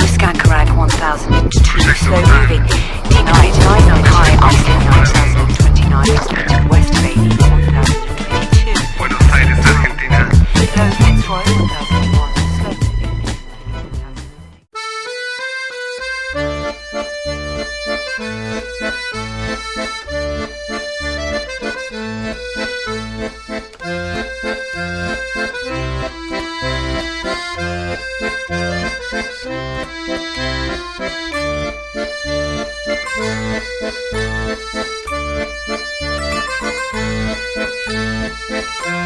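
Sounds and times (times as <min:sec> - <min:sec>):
rhythmic bass: 0:00.0 - 0:14.6
melody of held notes: 0:01.0 - 0:07.9, 0:14.8 - 0:39.0.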